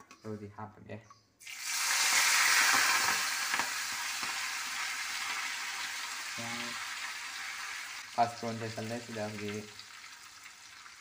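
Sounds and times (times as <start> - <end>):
food sizzling in hot oil: 1.4 - 11.0.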